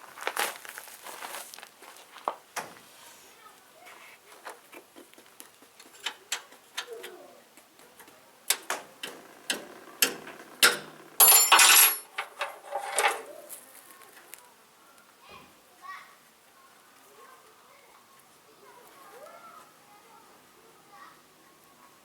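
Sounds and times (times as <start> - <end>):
irregular knocks and clicks: 8.0 - 11.2
loud scraping rustle: 12.0 - 14.4.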